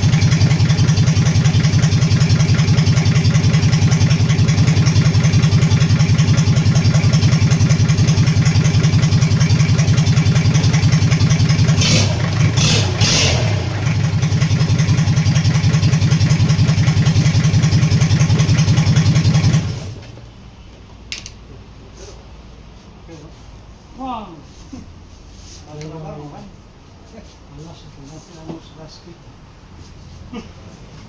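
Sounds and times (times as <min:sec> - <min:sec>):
diesel engine running: 0:00.0 - 0:20.2.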